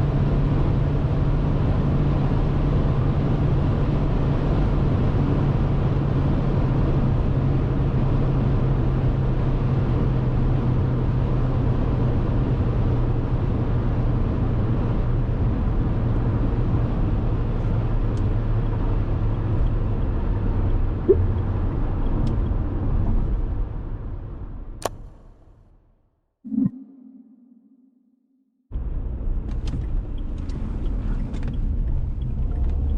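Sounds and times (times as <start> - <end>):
sharp click: 24.8 - 25.4
car engine drone: 26.5 - 28.2.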